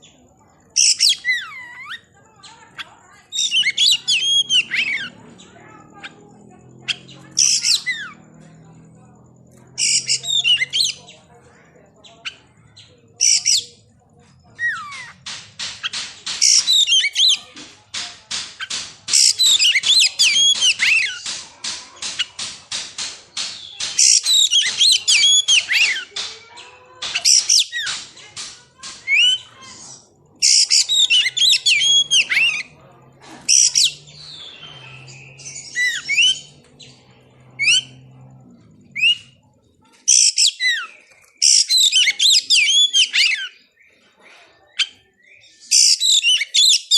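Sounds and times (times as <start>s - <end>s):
songbird whistling and trilling: 3.3s - 5.1s, 9.8s - 11.0s, 16.4s - 17.4s, 23.6s - 26.1s, 29.0s - 32.7s, 40.1s - 43.6s.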